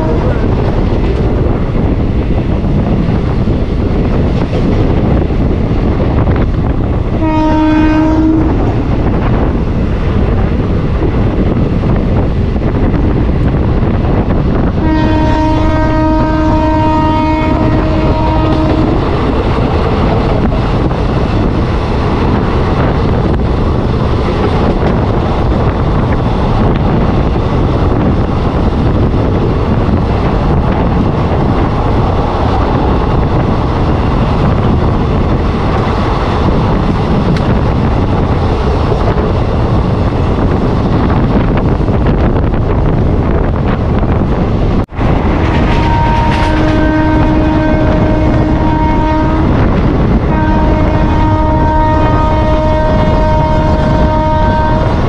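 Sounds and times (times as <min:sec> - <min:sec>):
locomotive horn: 0:00.0 - 0:00.5, 0:07.1 - 0:08.8, 0:14.8 - 0:20.0, 0:45.4 - 0:55.0
train rushing on rails: 0:00.0 - 0:55.0
wind buffeting microphone: 0:00.0 - 0:55.0.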